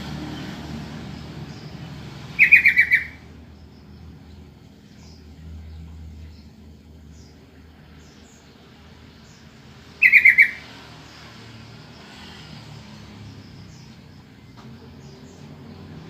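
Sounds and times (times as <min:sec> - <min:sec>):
bird calling: 0:01.5 - 0:03.4, 0:09.9 - 0:10.7.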